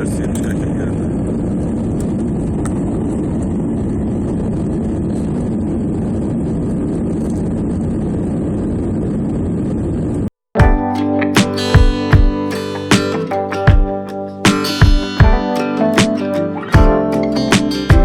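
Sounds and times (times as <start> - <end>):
airplane cabin engine and airflow: 0.0 - 10.3
strummed acoustic guitar music: 10.6 - 18.0.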